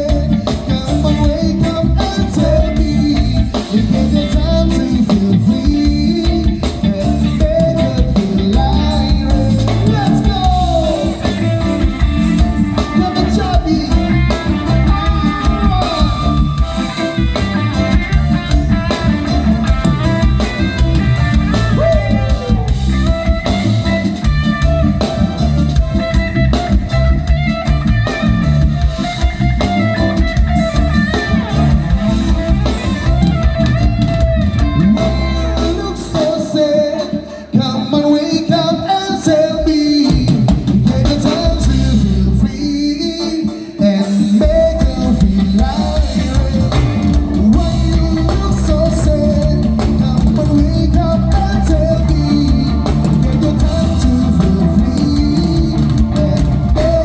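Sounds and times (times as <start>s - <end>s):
bass: 0.0s - 37.0s, 37.6s - 57.0s
drum kit: 0.0s - 57.0s
guitar: 0.0s - 57.0s
person singing: 0.0s - 57.0s.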